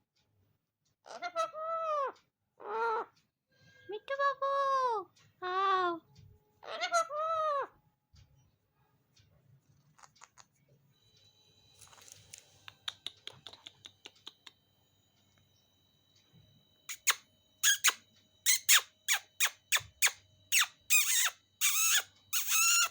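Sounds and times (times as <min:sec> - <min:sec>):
parrot screeching: 0:01.0 - 0:03.1, 0:06.6 - 0:07.8, 0:16.9 - 0:22.9.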